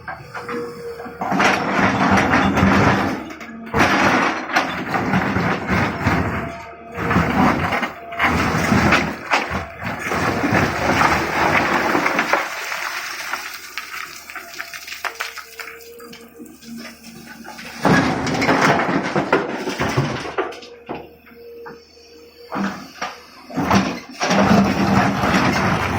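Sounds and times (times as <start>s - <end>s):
rock rattling and crashing into truck: 7.1s - 15.7s.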